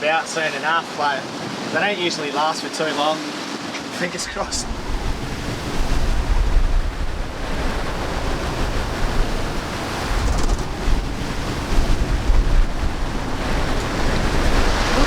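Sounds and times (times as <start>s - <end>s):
sea rushing along boat hull: 0.0s - 15.0s
wind gusting over microphone: 4.0s - 15.0s.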